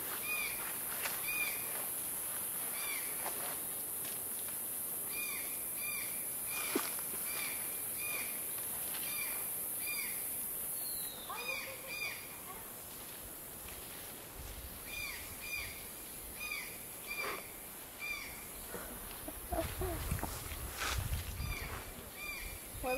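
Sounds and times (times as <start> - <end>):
steady high hiss: 0.0 - 22.9
forest birds calling: 0.1 - 1.8, 2.6 - 3.4, 5.0 - 12.8, 14.7 - 20.7, 21.3 - 22.9.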